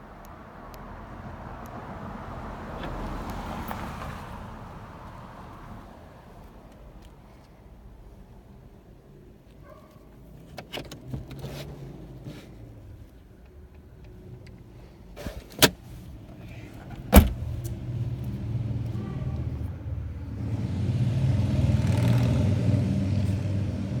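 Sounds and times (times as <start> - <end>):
loud thump: 17.1 - 17.5.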